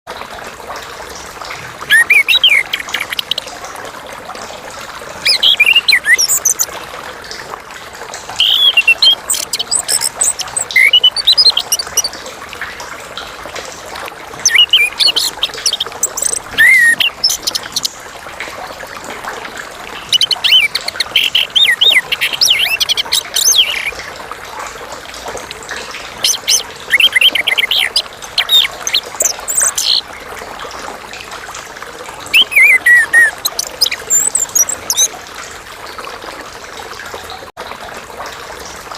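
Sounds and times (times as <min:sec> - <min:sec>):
thrush singing whistled phrases: 0:01.9 - 0:03.4, 0:05.2 - 0:06.7, 0:08.4 - 0:12.1, 0:14.4 - 0:17.9, 0:20.0 - 0:24.0, 0:26.2 - 0:30.0, 0:32.3 - 0:35.1.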